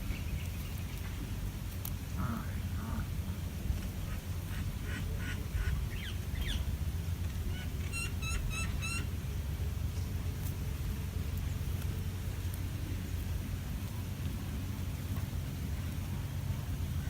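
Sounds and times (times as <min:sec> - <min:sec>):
steady low rumble: 0:00.0 - 0:17.0
short high bird calls: 0:07.5 - 0:09.1.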